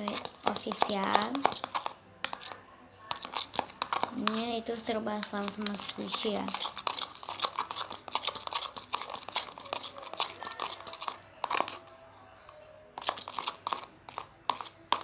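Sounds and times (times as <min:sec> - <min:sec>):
plastic crinkling and crackling: 0:05.3 - 0:11.8.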